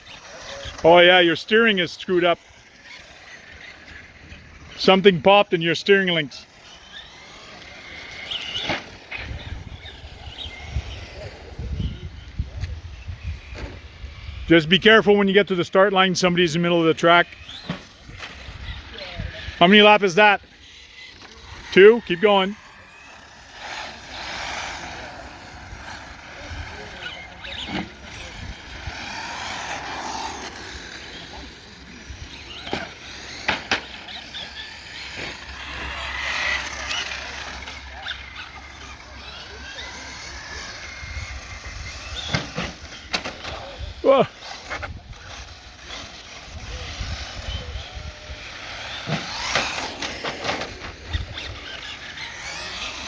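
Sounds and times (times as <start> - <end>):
electric motors whining: 0.0 - 53.0
tyre noise: 17.4 - 53.0.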